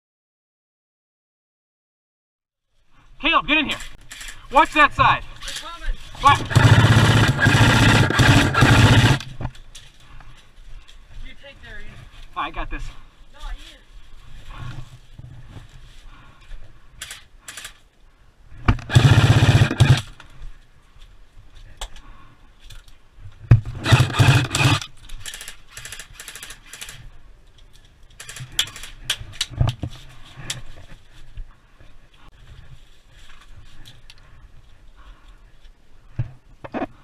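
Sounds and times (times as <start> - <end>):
airsoft gun full-auto bursts: 6.2 - 9.3, 18.8 - 20.1, 23.8 - 27.0.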